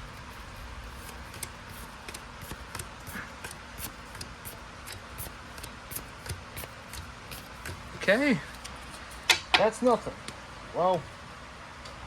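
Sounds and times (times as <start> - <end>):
trading cards clicking and sliding: 0.0 - 9.3.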